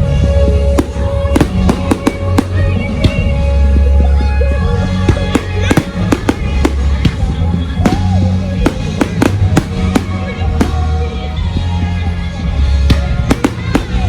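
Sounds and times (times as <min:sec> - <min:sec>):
music with heavy bass: 0:00.0 - 0:14.0
fireworks bangs and cracks: 0:00.6 - 0:03.9, 0:05.0 - 0:11.8, 0:12.9 - 0:14.0.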